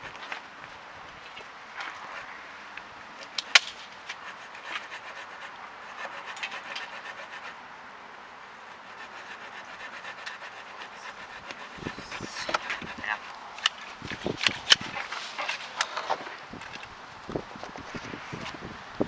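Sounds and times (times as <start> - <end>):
sharp twig crack: 3.3 - 3.9.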